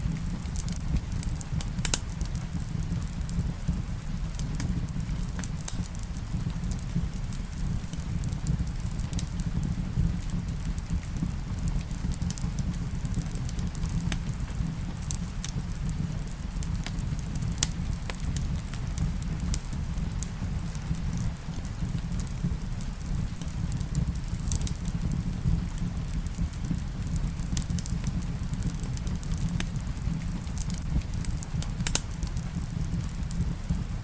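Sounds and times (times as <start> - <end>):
rain on a roof: 0.0 - 34.0
wood fire crackling: 0.0 - 34.0.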